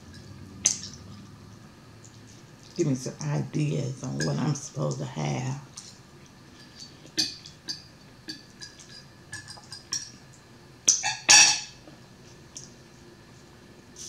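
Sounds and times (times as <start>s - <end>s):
wet chewing and lip-smacking: 5.7s - 11.0s.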